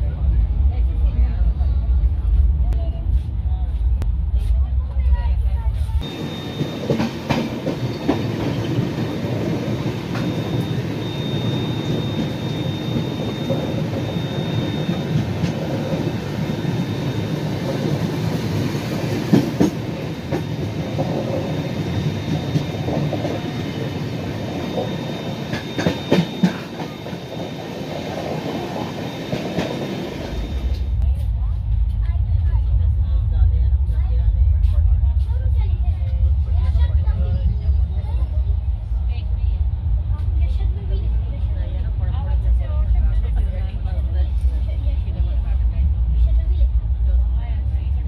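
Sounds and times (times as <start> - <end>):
train wheels rumbling on rails: 0.0 - 48.0
train wheel clacks: 6.0 - 30.9.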